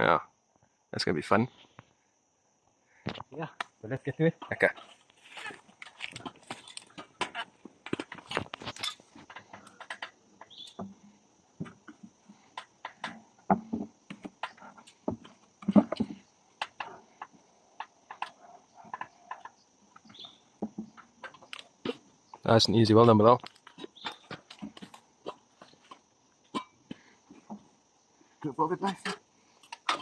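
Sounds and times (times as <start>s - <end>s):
wooden box knocking and scraping: 15.0s - 16.2s.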